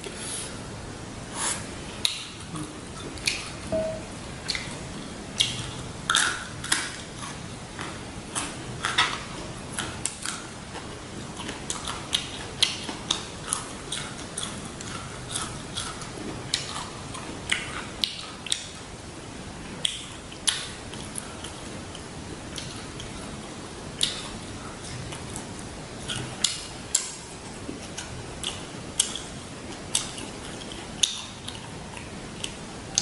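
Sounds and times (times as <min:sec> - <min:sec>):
crunchy chewing: 0:05.4 - 0:18.7, 0:24.0 - 0:33.0
wet mouth clicks and smacks: 0:24.0 - 0:24.3.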